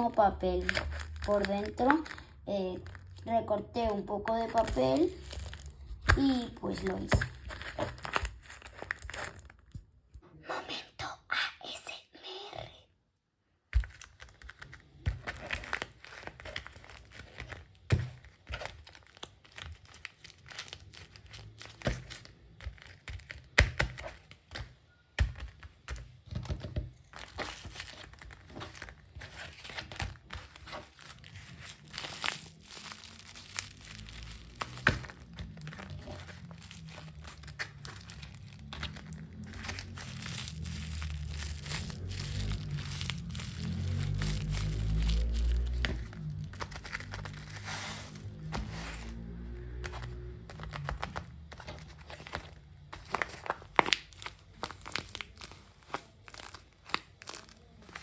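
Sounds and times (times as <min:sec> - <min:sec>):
paper crinkling and rustling: 0:00.0 - 0:03.3, 0:03.9 - 0:09.8, 0:13.8 - 0:58.0.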